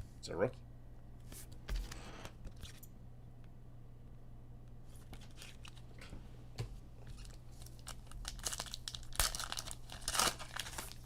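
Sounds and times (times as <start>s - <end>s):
faint steady hum: 0.0s - 11.0s
plastic wrapping crinkling: 7.1s - 11.0s.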